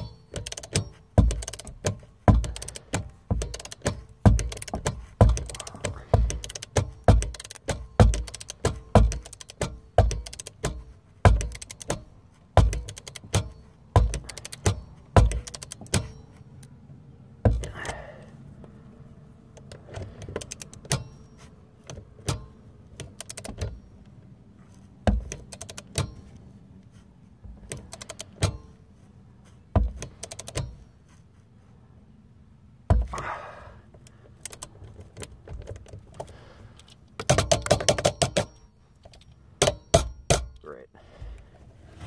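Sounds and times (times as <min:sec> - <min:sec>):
rattling clicks: 0:00.0 - 0:16.7, 0:19.5 - 0:24.2, 0:25.0 - 0:26.5, 0:27.4 - 0:28.8, 0:29.8 - 0:30.9, 0:33.9 - 0:40.7
clicks and knocks of tools: 0:00.0 - 0:16.8, 0:19.5 - 0:24.1, 0:24.7 - 0:26.5, 0:27.5 - 0:28.8, 0:29.8 - 0:30.9.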